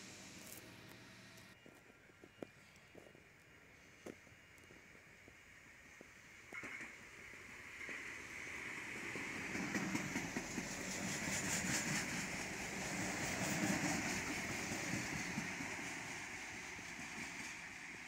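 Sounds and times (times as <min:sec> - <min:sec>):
diesel engines running: 0:00.0 - 0:01.6
train wheels clattering on rails: 0:04.9 - 0:18.0.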